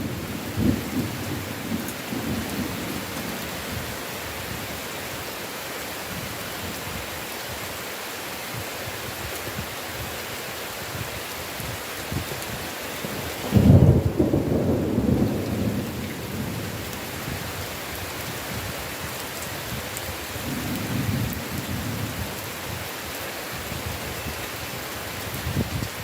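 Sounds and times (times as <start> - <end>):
thunder rumbling: 0.0 - 3.9, 13.1 - 17.5
heavy rain: 0.0 - 26.0.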